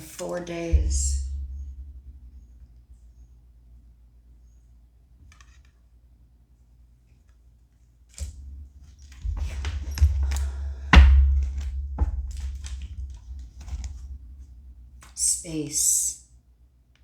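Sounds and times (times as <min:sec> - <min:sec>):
low thumps on table: 0:08.3 - 0:14.8.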